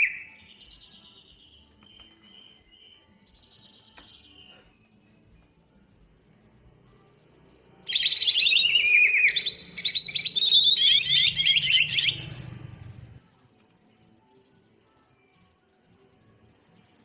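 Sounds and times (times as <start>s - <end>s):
bird singing: 0.0s - 5.7s, 7.8s - 13.2s.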